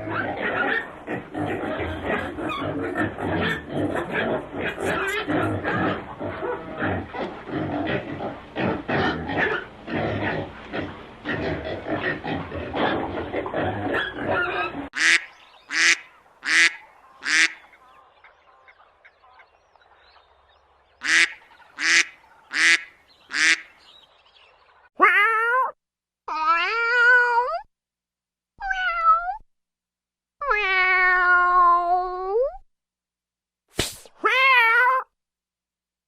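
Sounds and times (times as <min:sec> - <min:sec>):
waterfowl flock calling: 0:01.6 - 0:06.4, 0:14.2 - 0:20.3, 0:21.0 - 0:24.7.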